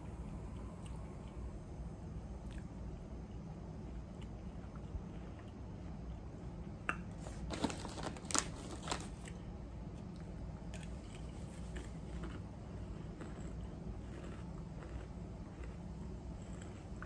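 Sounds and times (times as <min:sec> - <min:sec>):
potato chips crunching: 0:07.3 - 0:09.4, 0:13.1 - 0:15.9.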